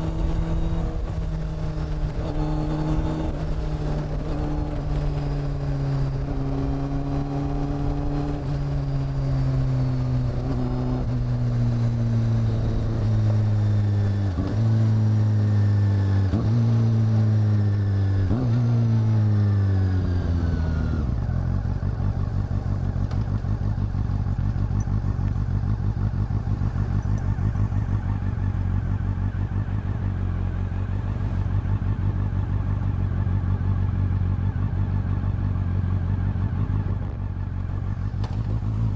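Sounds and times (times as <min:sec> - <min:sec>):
motorcycle engine slowing to idle: 0:19.5 - 0:38.9.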